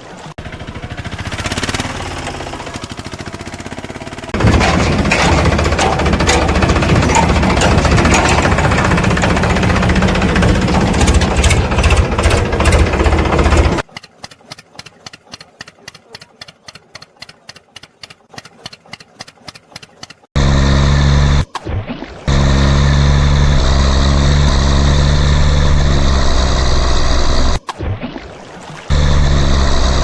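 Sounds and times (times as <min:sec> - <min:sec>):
deep-pitched engine running: 0:00.4 - 0:13.9, 0:20.4 - 0:21.5, 0:22.3 - 0:27.6, 0:28.9 - 0:30.0.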